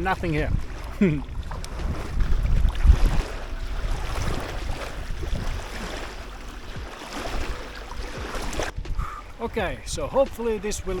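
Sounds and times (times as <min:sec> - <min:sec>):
small waves on rocky shore: 0:00.0 - 0:08.8
wind buffeting microphone: 0:00.0 - 0:11.0.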